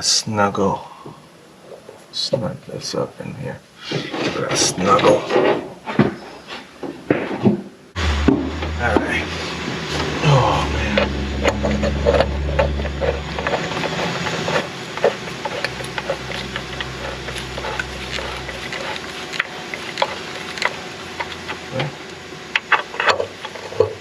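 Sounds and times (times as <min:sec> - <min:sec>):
low steady hum: 0:07.2 - 0:24.0.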